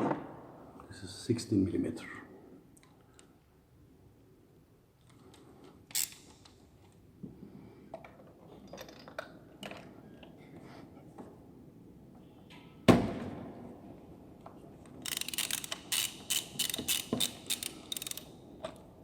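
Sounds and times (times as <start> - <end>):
hand tools clicking and tapping: 15.1 - 18.8.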